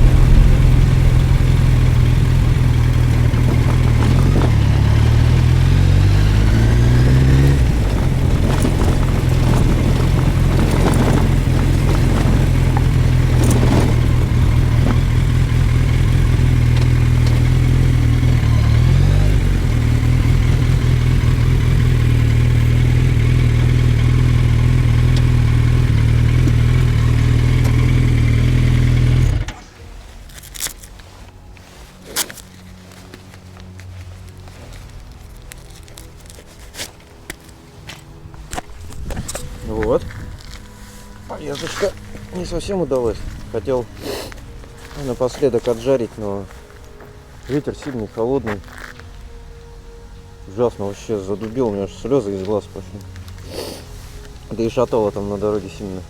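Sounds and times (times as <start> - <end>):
motorcycle engine running: 0.0 - 29.8.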